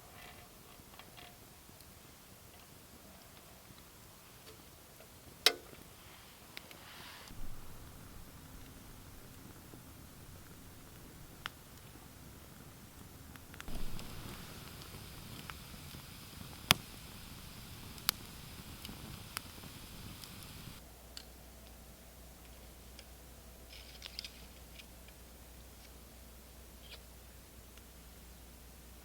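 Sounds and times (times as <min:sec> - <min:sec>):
faint hiss: 0:00.0 - 0:29.0
sharp clicks and pops: 0:07.3 - 0:21.3.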